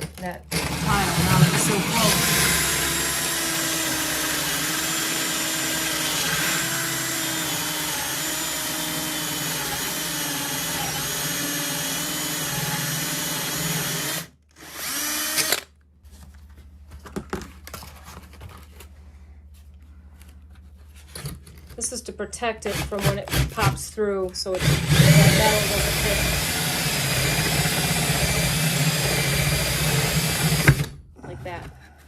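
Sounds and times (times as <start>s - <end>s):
power drill boring through tile: 0.0s - 15.7s, 22.7s - 23.8s, 24.4s - 31.0s.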